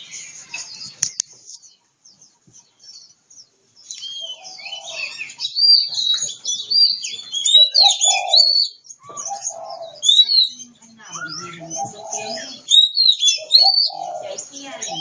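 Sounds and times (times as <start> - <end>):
bird singing whistles and chirps: 3.8 - 15.0.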